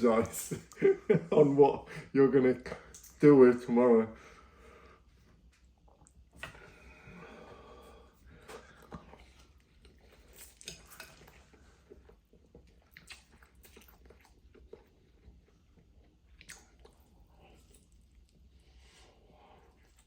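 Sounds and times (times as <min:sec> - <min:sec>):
faint chewing noodles: 0:05.5 - 0:20.0
soft mouth smacks and clicks: 0:12.8 - 0:14.1, 0:16.3 - 0:17.0.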